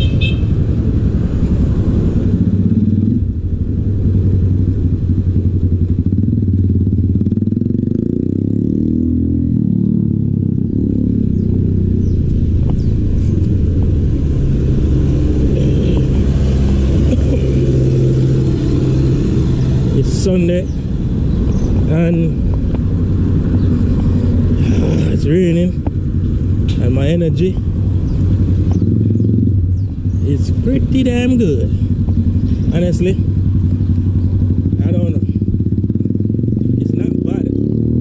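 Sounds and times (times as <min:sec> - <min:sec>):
vehicle engine running: 0:09.4 - 0:37.4.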